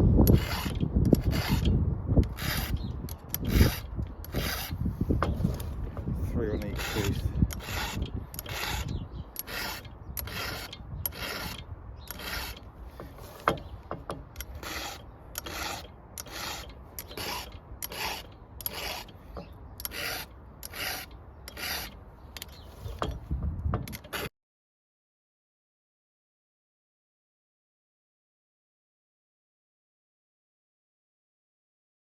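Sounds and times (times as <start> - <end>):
file rasping on saw chain: 0.2 - 23.3, 23.9 - 24.3.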